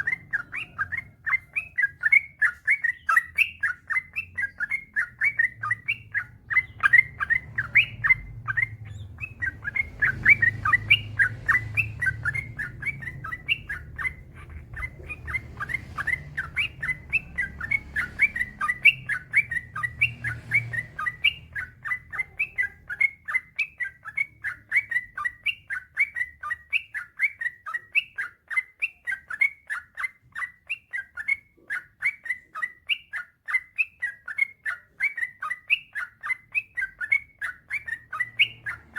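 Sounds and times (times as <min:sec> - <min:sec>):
bird singing quick chirping notes: 0:00.0 - 0:29.4.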